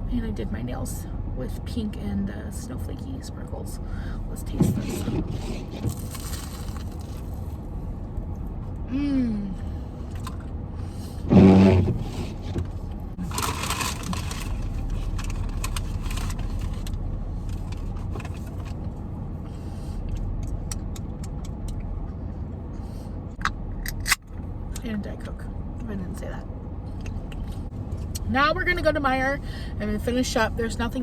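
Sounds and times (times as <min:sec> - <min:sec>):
car engine hum: 0:00.0 - 0:31.0
person humming: 0:08.9 - 0:09.6.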